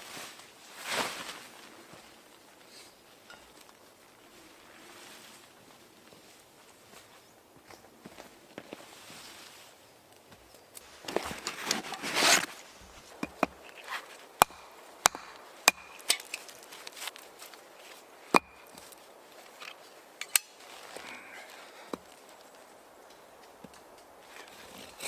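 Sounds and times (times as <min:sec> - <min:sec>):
rustling crunch: 0:10.3 - 0:23.5
wood knocking and snapping: 0:11.0 - 0:17.2, 0:18.4 - 0:19.0.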